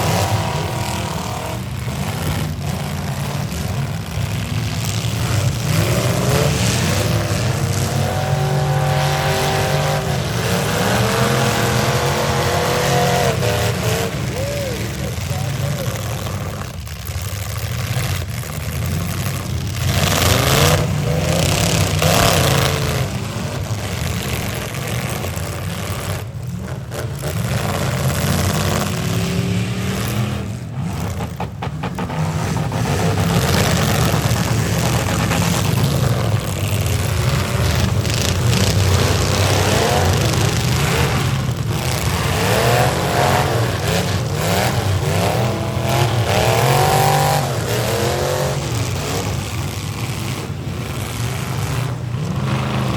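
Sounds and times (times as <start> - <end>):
car engines revving hard: 0.0 - 52.9.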